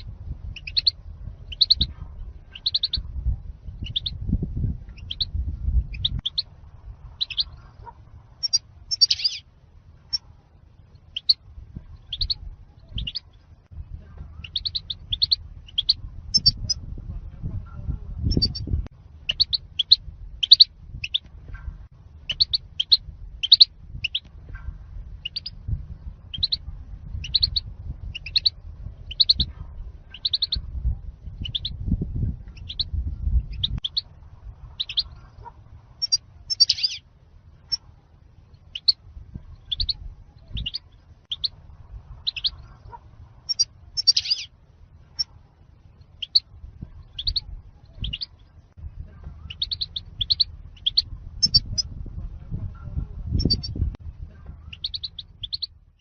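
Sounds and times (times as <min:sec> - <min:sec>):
goldfinch chirping: 0:00.6 - 0:01.9, 0:02.5 - 0:03.0, 0:03.8 - 0:04.2, 0:05.0 - 0:05.3, 0:07.2 - 0:07.6, 0:08.4 - 0:09.4, 0:11.1 - 0:11.4, 0:12.0 - 0:13.3, 0:14.4 - 0:16.7, 0:19.3 - 0:21.2, 0:22.3 - 0:24.3, 0:25.2 - 0:25.6, 0:26.3 - 0:26.6, 0:27.2 - 0:28.5, 0:29.1 - 0:29.5, 0:30.1 - 0:30.6, 0:31.4 - 0:31.8, 0:34.8 - 0:35.2, 0:36.0 - 0:37.0, 0:38.7 - 0:39.0, 0:39.6 - 0:41.6, 0:42.2 - 0:42.6, 0:43.5 - 0:44.5, 0:46.1 - 0:46.4, 0:47.0 - 0:48.5, 0:49.4 - 0:51.9, 0:53.4 - 0:53.8, 0:54.6 - 0:55.7.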